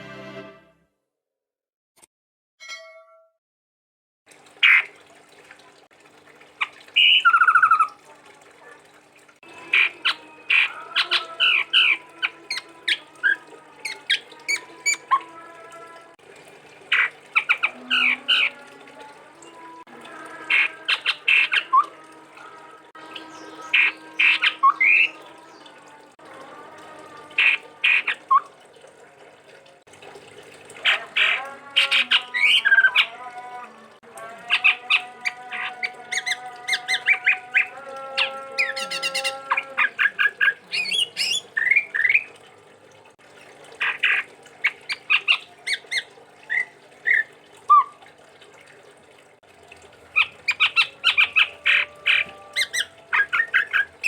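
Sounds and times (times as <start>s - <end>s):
bird calling and chattering: 7.0s - 8.0s, 23.1s - 25.2s, 34.4s - 42.3s, 50.2s - 54.0s.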